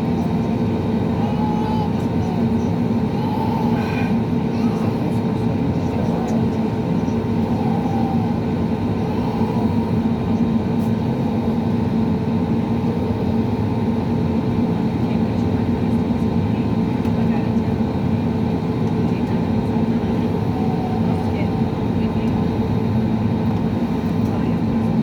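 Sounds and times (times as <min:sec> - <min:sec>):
aircraft engines humming: 0:00.0 - 0:25.0.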